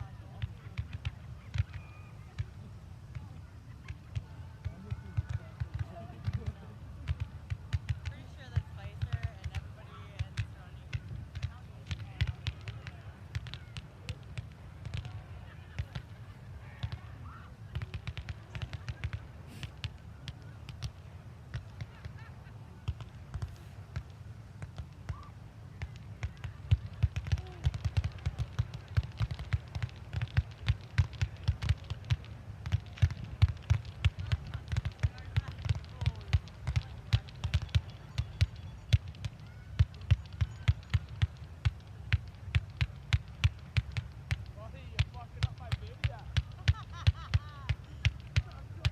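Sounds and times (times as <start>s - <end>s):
fireworks crackling and popping: 25.8s - 48.9s.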